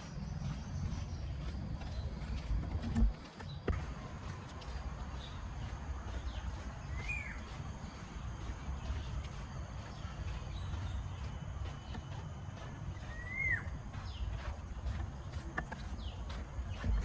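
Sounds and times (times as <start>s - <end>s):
bird call: 13.0s - 14.2s.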